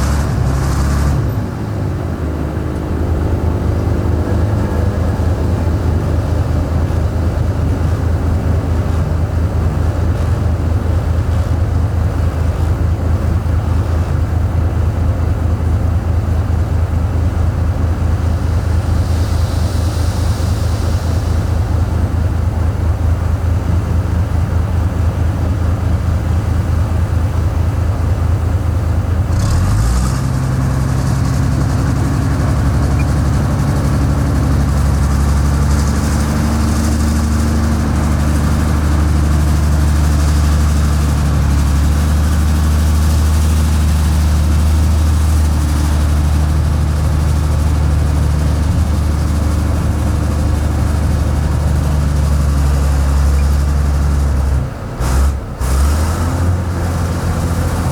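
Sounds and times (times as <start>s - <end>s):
heavy diesel engine droning: 0.0s - 57.9s
brief hiss: 18.5s - 22.2s.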